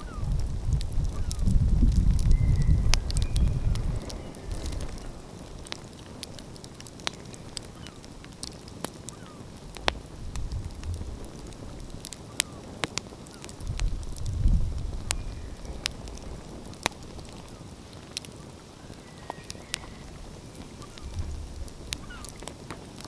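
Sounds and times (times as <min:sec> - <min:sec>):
wood fire crackling: 0:00.0 - 0:23.0
low rumble: 0:09.7 - 0:11.9.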